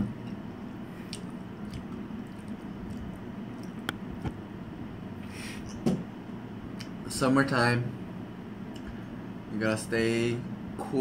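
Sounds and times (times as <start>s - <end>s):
person chewing: 0.2s - 4.3s
soft mouth clicks: 1.1s - 4.0s.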